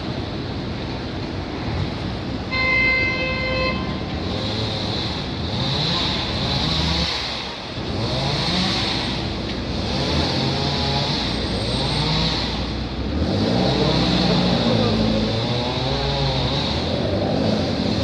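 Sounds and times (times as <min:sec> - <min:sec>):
street traffic: 0:00.0 - 0:18.0
vehicles accelerating: 0:00.0 - 0:18.0
vehicle horn: 0:02.5 - 0:04.2.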